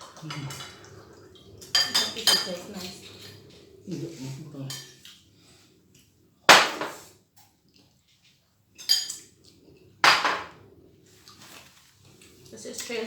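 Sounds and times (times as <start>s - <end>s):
loud wet eating noise: 0.0s - 6.3s.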